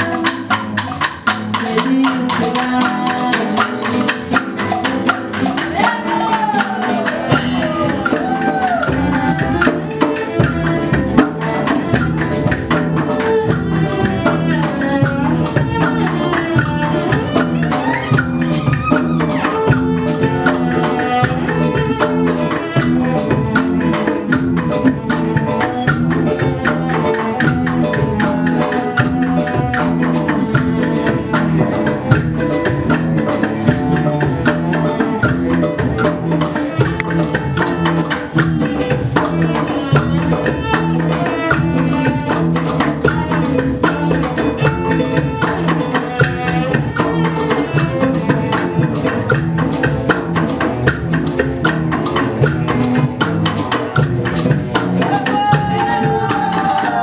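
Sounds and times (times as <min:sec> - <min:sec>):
acoustic guitar: 0:00.0 - 0:57.0
cello: 0:00.0 - 0:57.0
hand percussion and shakers: 0:00.0 - 0:57.0.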